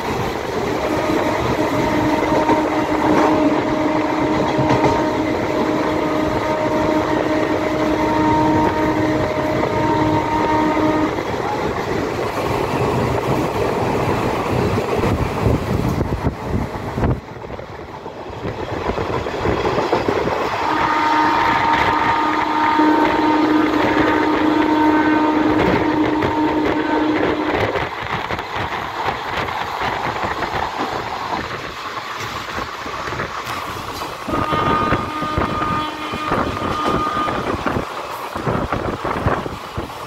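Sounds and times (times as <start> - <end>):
train wheels rumbling on rail: 0.0 - 40.0
wind: 0.0 - 40.0
locomotive horn blast: 0.8 - 11.8, 20.5 - 27.8, 33.4 - 39.2.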